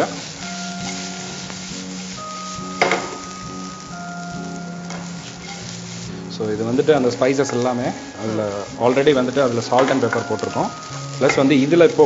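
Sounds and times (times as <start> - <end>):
chicken sizzling in a pan: 0.0 - 12.0
pan clatter: 7.4 - 11.6.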